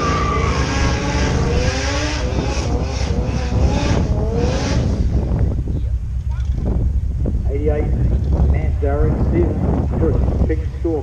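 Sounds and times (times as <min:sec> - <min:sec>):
racing car engines revving: 0:00.0 - 0:06.7
heavy low rumble: 0:00.0 - 0:11.0.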